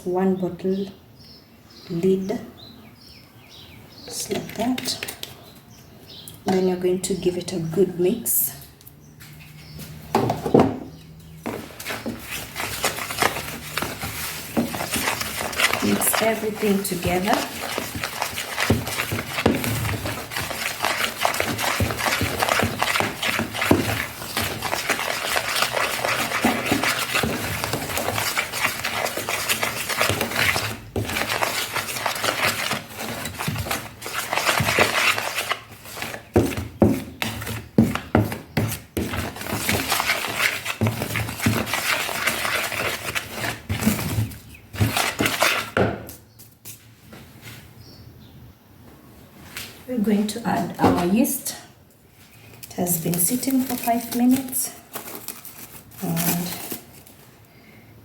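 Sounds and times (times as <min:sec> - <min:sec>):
utensil scraping and clinking in bowl: 0:11.5 - 0:45.8.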